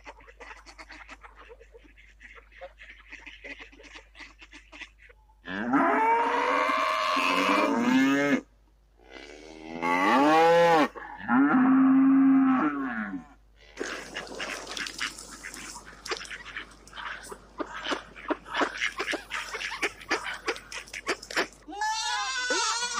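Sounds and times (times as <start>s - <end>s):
cattle mooing: 9.1s - 13.3s.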